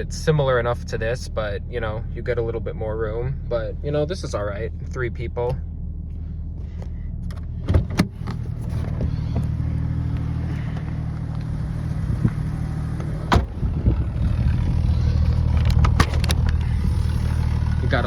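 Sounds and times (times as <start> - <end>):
car engine idling: 0.0 - 18.0
sharp clicks and knocks: 15.4 - 16.6.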